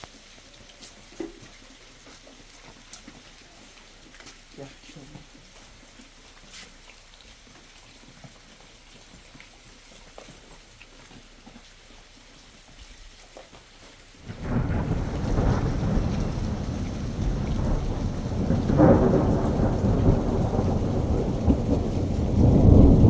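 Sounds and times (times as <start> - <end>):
light rain: 0.0 - 23.0
thunder rumbling: 14.2 - 23.0.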